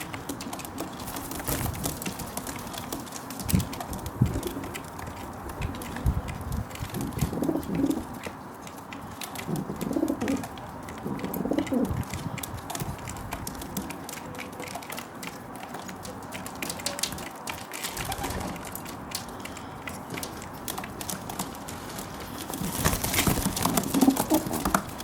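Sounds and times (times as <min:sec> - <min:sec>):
beak pecking at seeds: 0:00.0 - 0:25.0
pigeon cooing: 0:07.0 - 0:08.3, 0:09.4 - 0:12.1, 0:17.9 - 0:18.6, 0:23.3 - 0:25.0.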